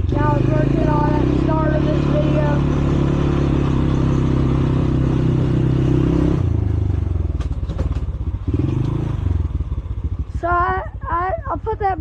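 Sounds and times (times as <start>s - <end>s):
small quad bike engine running: 0.0s - 12.0s.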